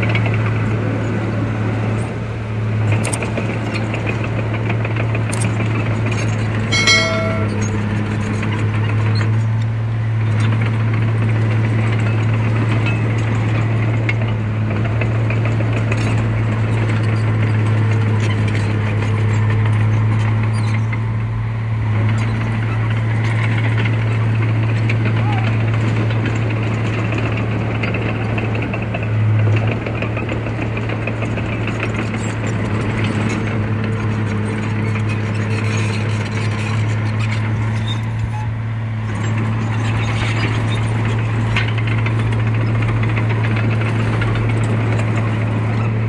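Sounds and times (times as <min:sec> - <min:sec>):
heavy diesel machinery running: 0:00.0 - 0:46.0
high-pitched squeal: 0:06.7 - 0:07.7.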